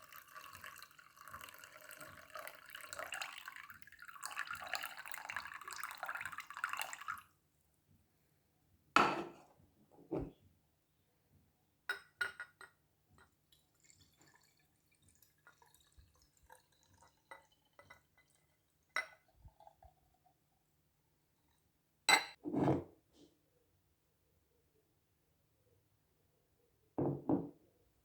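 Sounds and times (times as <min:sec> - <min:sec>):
liquid dripping: 0:00.0 - 0:07.2, 0:13.2 - 0:20.1
glassware clinking: 0:09.0 - 0:09.4, 0:11.9 - 0:12.8, 0:18.9 - 0:19.8, 0:22.1 - 0:22.4, 0:27.0 - 0:27.5.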